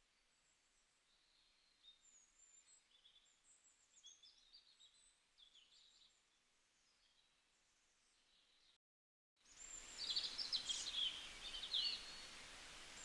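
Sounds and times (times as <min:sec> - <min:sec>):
faint birdsong chirps and trills: 0:00.0 - 0:08.8, 0:09.4 - 0:13.0
faint steady hiss: 0:09.4 - 0:13.0.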